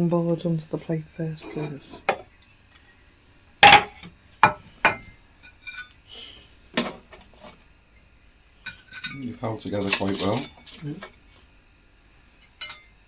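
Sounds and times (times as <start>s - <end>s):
board and plate clacking: 3.6s - 5.0s.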